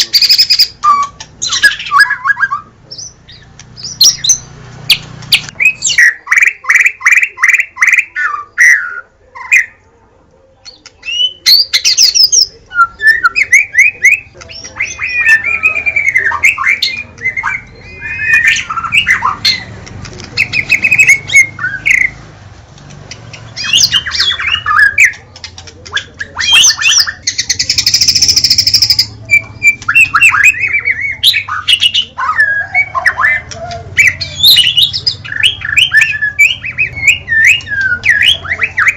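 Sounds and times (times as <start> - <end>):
songbird singing whistled phrases: 0.0 - 9.8, 10.7 - 19.7, 23.3 - 25.2, 26.0 - 38.9
harsh rasping bird call: 13.1 - 19.8.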